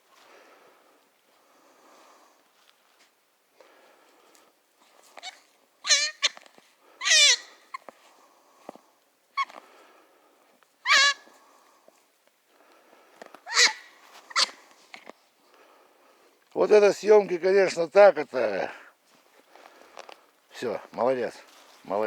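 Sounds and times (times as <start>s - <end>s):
hare crying: 5.2s - 6.4s, 7.0s - 7.6s, 10.9s - 11.2s, 13.5s - 14.6s.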